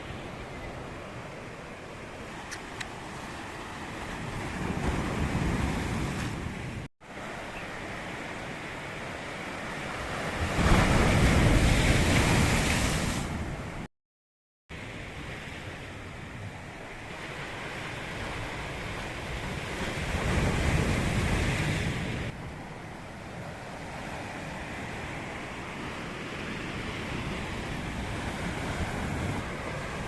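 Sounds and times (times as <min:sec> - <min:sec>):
sea waves breaking on shore: 0:00.0 - 0:13.9, 0:14.8 - 0:30.0.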